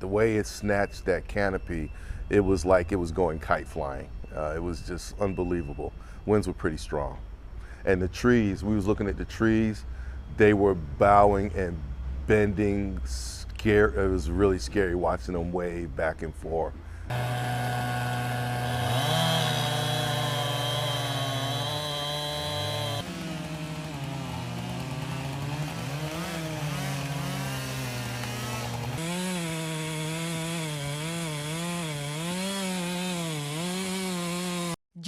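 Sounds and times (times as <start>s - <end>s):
chainsaw revving: 17.1s - 34.8s.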